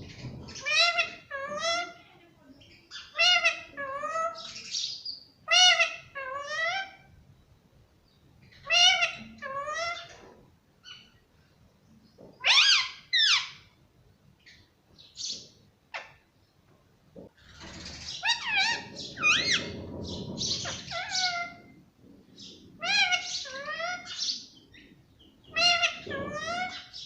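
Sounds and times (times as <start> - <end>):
parakeet squawking: 8.6 - 10.1, 17.8 - 21.7, 22.4 - 24.4, 25.5 - 27.0.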